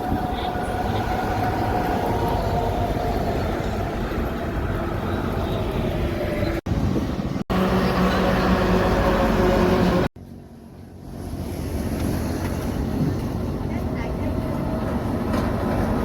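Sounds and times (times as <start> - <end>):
truck engine passing: 0.0 - 10.1
low engine drone: 0.0 - 16.0
road traffic: 0.0 - 16.0.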